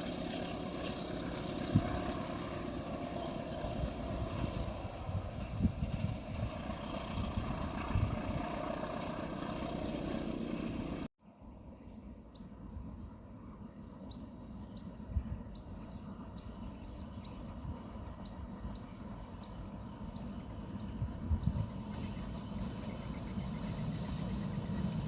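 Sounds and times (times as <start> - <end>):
high bird chirp: 18.2 - 24.1.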